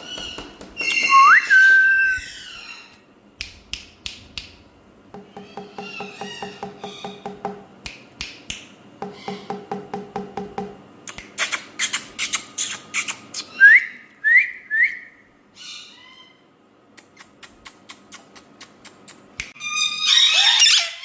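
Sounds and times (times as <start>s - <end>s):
parrot call: 0.0s - 3.0s, 19.6s - 21.0s
parrot whistling: 0.8s - 2.7s.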